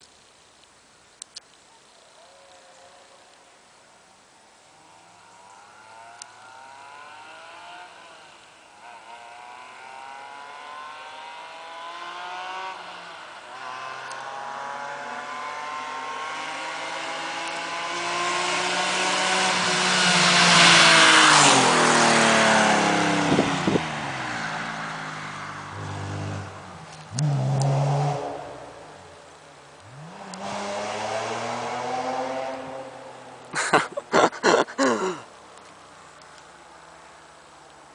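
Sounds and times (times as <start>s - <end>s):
car accelerating hard: 5.7s - 28.9s, 29.8s - 35.2s.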